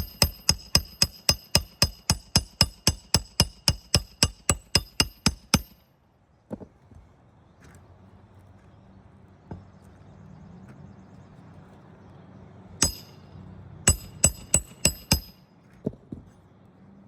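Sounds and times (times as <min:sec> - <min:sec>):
hammer striking a nail: 0:00.0 - 0:05.8, 0:12.8 - 0:13.2, 0:13.9 - 0:15.4.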